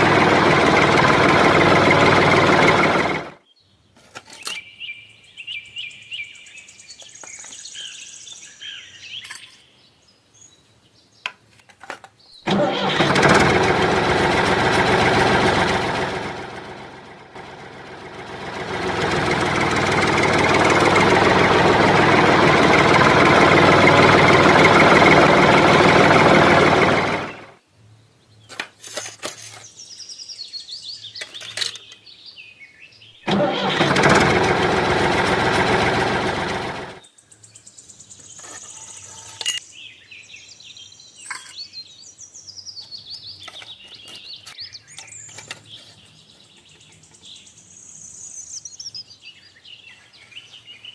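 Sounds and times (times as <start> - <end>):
small motor running loudly: 0.0 - 3.4, 12.5 - 27.5, 33.3 - 37.0
faint bird chirps: 37.0 - 50.9.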